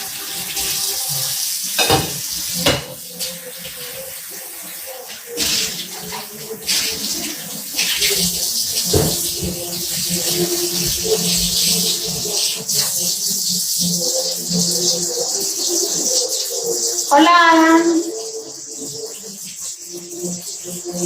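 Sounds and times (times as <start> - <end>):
tap water running into sink: 0.0 - 21.0
dishes knocking: 1.8 - 3.0.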